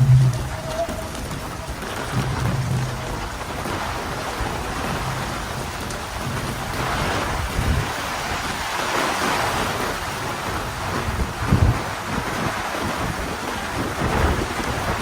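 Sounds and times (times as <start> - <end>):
low rumbles: 0.0 - 7.9
heavy rain: 0.0 - 15.0.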